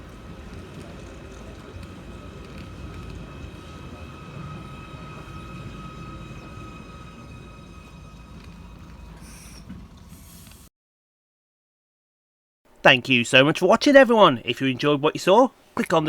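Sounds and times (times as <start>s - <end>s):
high electrical whine: 0.0s - 10.7s
train low rumble: 0.0s - 10.7s.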